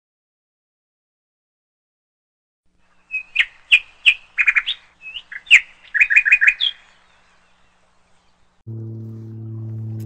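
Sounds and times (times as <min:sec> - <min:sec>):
small bird chirping and whistling: 0:03.0 - 0:07.0.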